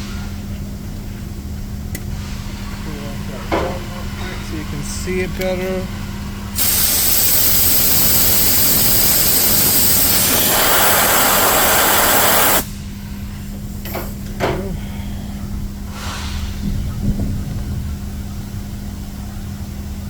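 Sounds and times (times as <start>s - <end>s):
rush of blown air: 6.6s - 12.7s.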